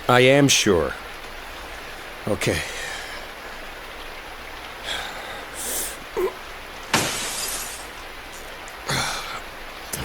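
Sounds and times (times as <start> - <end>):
glass window smashing: 6.9 - 7.9.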